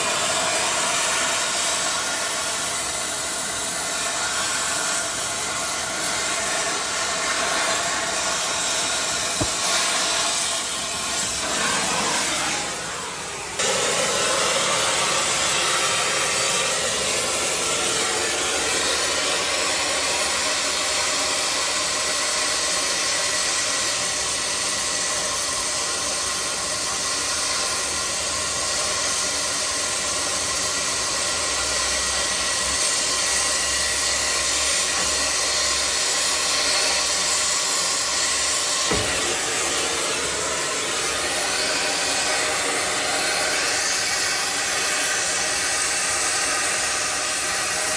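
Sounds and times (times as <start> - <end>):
torch flame hissing: 0.0 - 47.9
short knock: 38.9 - 40.2.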